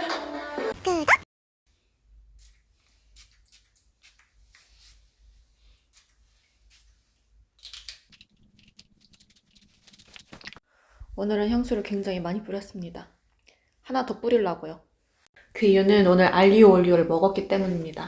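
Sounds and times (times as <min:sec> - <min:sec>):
small objects clicking and rustling: 0:07.6 - 0:10.6.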